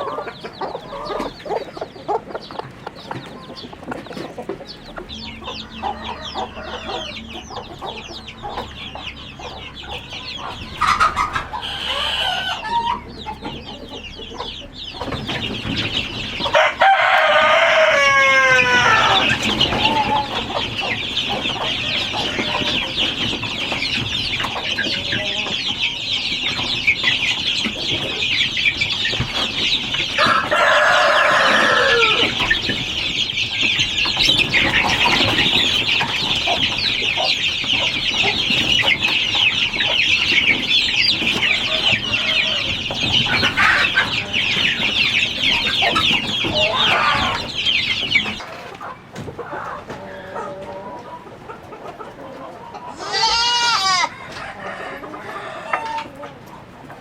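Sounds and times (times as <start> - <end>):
chickens clucking: 0.0 - 57.0
rooster crowing: 5.3 - 8.1, 11.5 - 13.0, 16.5 - 20.4, 30.1 - 32.4, 41.4 - 43.0, 53.0 - 56.2.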